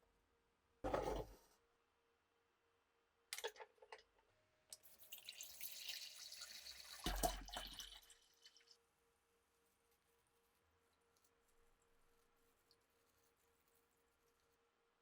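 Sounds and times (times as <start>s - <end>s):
water running: 4.8s - 8.6s.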